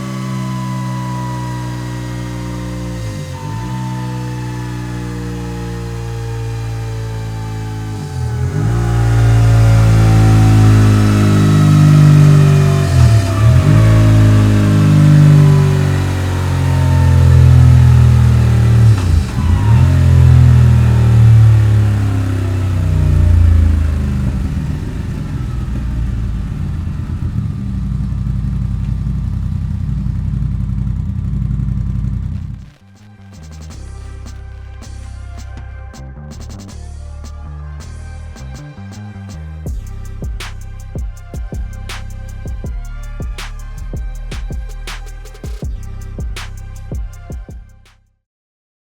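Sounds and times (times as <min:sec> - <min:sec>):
motorcycle engine on dynamometer: 0:00.0 - 0:32.7.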